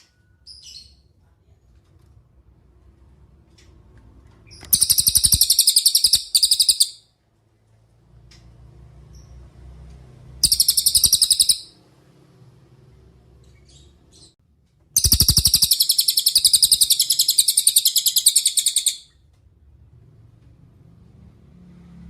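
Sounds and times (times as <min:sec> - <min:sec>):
songbird trilling: 0:04.7 - 0:07.0, 0:10.4 - 0:11.7, 0:15.0 - 0:19.1.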